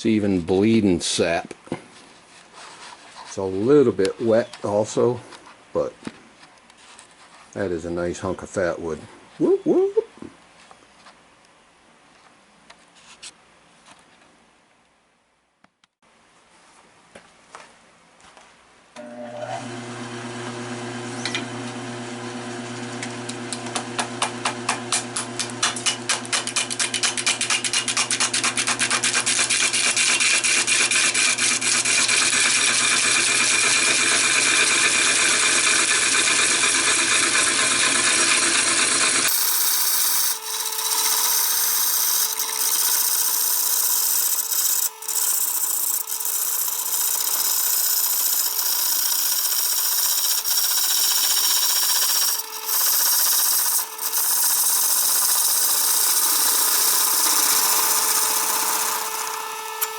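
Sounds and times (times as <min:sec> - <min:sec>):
lathe tool cutting wood: 0:28.8 - 0:59.9
lathe motor hum: 0:29.8 - 0:59.9.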